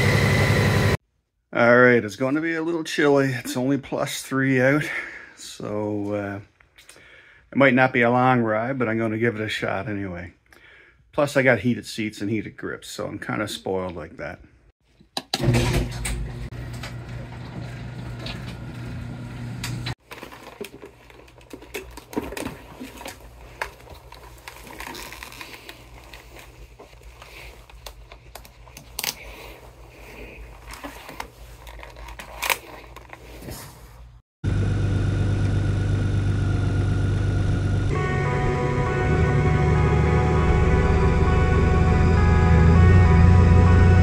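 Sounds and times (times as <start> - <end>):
garage door opener motor hum: 15.4 - 19.9, 34.5 - 38.0
helmet clicks and rustling: 19.9 - 34.2
motorcycle engine idling: 34.5 - 37.9.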